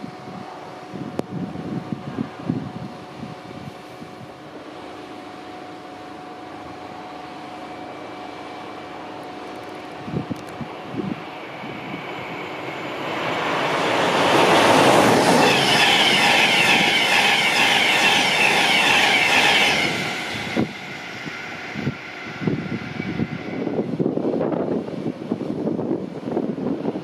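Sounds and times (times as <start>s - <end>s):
train rushing past on rails: 0.0s - 27.0s
high hissing rail noise: 3.6s - 25.3s.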